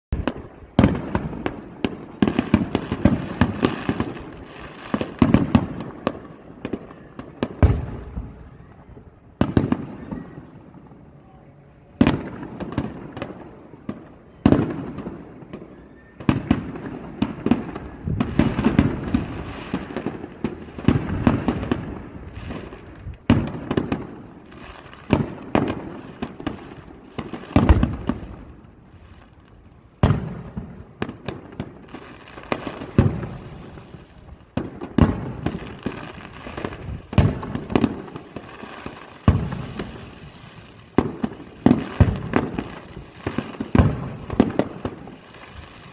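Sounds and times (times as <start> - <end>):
fireworks booming: 0.1 - 45.9.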